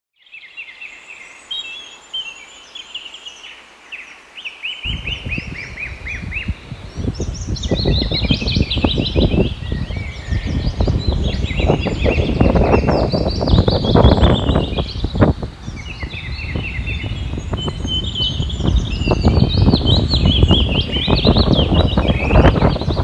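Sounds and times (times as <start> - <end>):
small birds chirping: 0.2 - 23.0
low rushing noise: 4.8 - 23.0.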